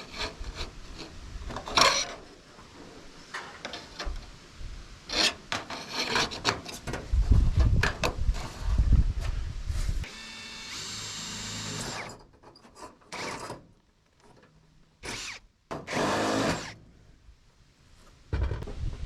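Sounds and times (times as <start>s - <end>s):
power drill running: 10.1s - 12.1s, 15.1s - 16.8s.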